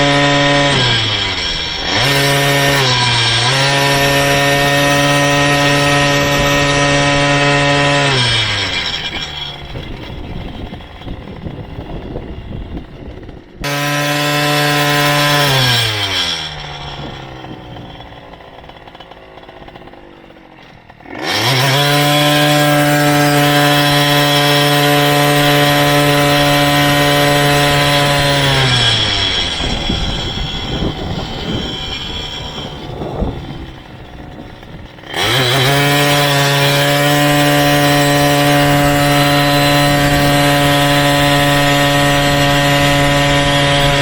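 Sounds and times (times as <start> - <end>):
small engine buzzing: 0.0 - 44.0.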